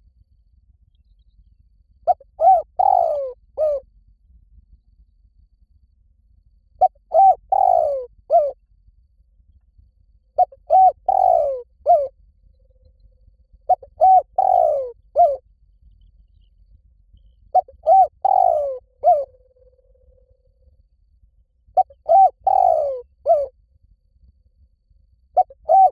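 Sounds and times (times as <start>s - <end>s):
dove cooing: 2.1s - 3.8s, 6.8s - 8.6s, 10.4s - 12.1s, 13.7s - 15.4s, 17.5s - 19.4s, 21.8s - 23.5s, 25.4s - 25.9s.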